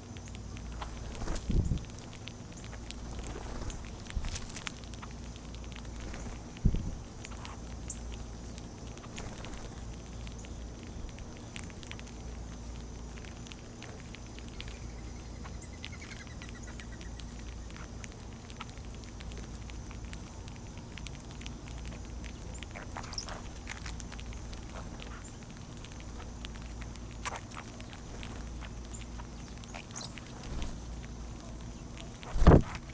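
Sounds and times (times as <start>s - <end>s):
birds pecking and scratching: 0.0s - 32.9s
bird chip calls: 14.4s - 18.8s, 21.3s - 26.3s, 27.2s - 30.6s.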